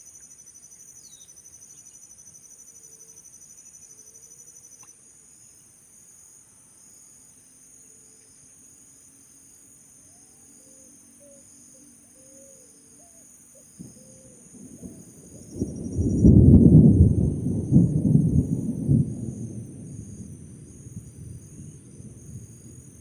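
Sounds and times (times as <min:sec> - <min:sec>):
insects chirring: 0:00.0 - 0:23.0
low thunder rumble: 0:13.8 - 0:23.0.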